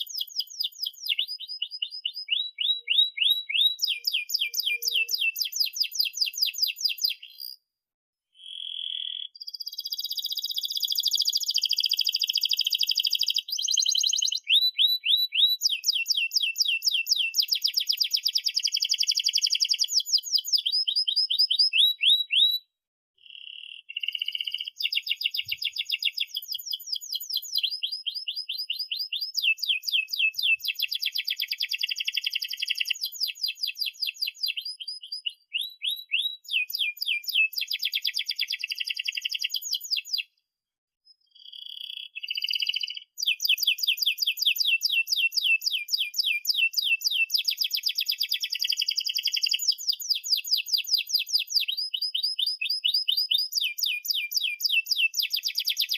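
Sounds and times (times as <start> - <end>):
canary singing trills: 0.0 - 7.6, 8.4 - 40.3, 41.1 - 55.9.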